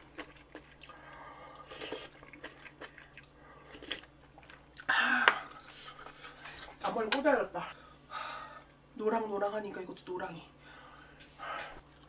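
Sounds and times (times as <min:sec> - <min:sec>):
person chewing and eating: 0:00.0 - 0:06.8, 0:11.8 - 0:12.0.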